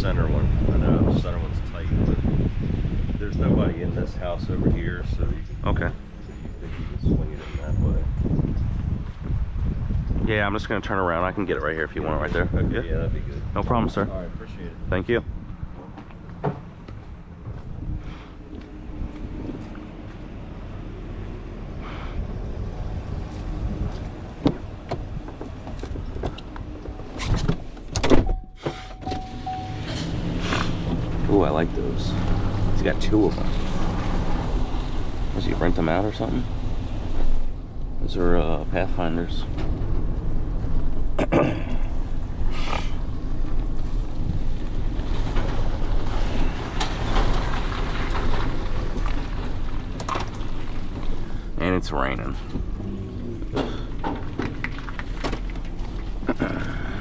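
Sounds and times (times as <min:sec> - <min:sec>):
wind noise on microphone: 0:00.0 - 0:10.8, 0:11.9 - 0:16.0, 0:16.6 - 0:19.8, 0:22.1 - 0:31.6, 0:39.4 - 0:51.3
truck engine running: 0:14.4 - 0:27.2, 0:28.4 - 0:57.0
steady electronic tone: 0:28.2 - 0:30.4.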